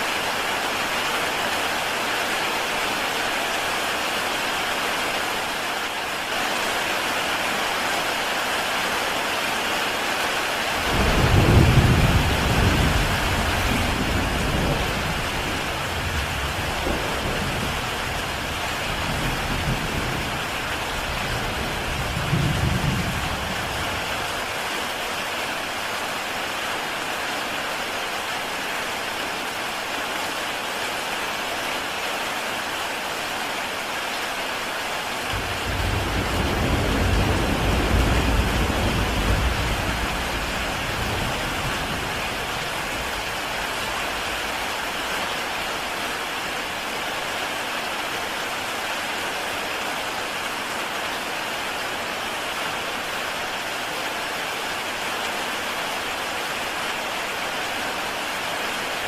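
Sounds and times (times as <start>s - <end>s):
heavy rain on a tile roof: 0.0s - 59.0s
thunder rumbling: 10.8s - 24.2s, 35.3s - 45.0s.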